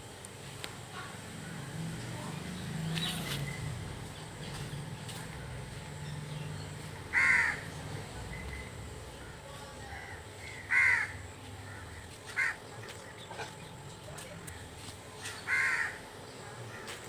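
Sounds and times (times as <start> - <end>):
crow cawing: 7.1 - 7.8, 9.2 - 12.7, 15.2 - 16.1.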